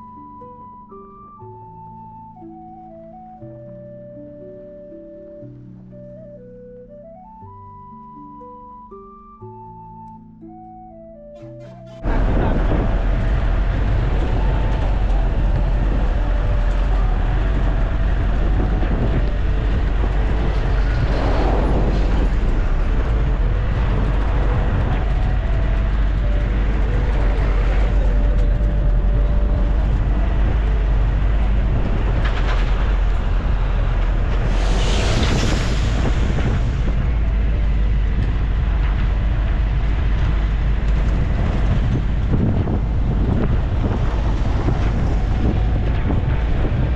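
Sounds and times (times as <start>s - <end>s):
train rumbling: 11.6s - 46.9s
hissing swells: 19.3s - 25.2s, 34.3s - 38.1s.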